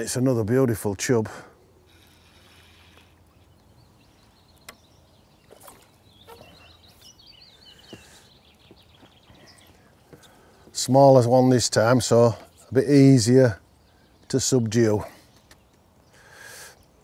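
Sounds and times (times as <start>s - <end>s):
small bird twittering: 1.9s - 10.4s
faint sharp clicks: 4.5s - 4.8s, 15.3s - 15.9s.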